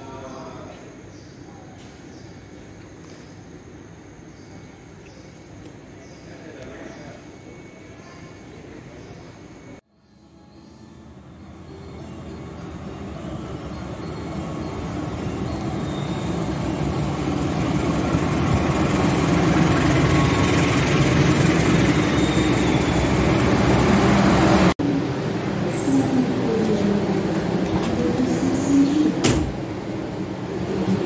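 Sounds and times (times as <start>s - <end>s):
diesel locomotive engine hum: 2.4s - 31.0s
train wheels rumbling: 12.0s - 31.0s.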